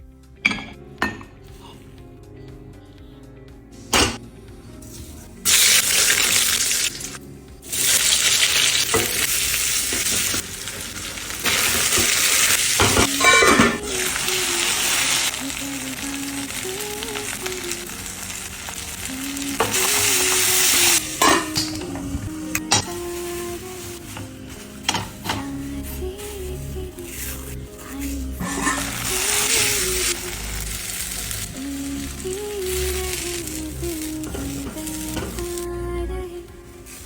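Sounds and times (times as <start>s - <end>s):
food sizzling in a hot pan: 5.5s - 26.4s, 28.0s - 35.7s.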